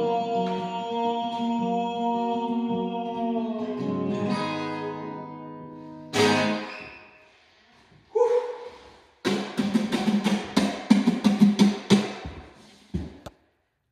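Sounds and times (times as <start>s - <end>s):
acoustic guitar chords ringing: 0.0s - 6.7s.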